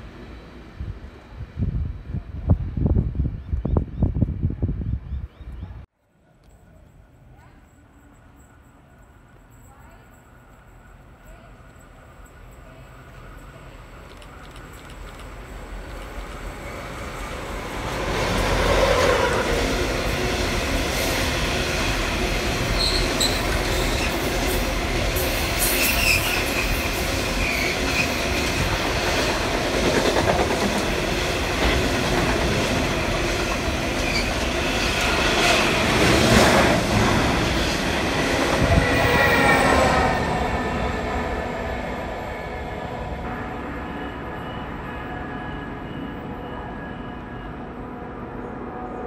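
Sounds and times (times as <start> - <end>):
diesel locomotives passing: 0.0 - 3.3, 6.7 - 49.0
wagons clickety-clack over rail joints: 13.4 - 16.5, 27.4 - 37.2
high-pitched wheel squeal: 22.8 - 24.1, 25.7 - 26.6.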